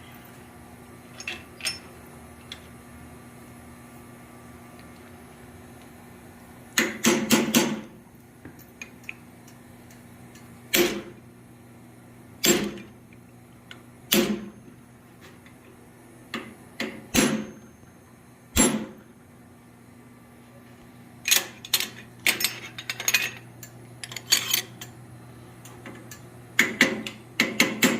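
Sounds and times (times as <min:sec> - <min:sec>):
steady low hum: 0:00.0 - 0:27.9
hammer striking steel on anvil: 0:12.4 - 0:12.8, 0:16.8 - 0:17.6, 0:18.6 - 0:19.0.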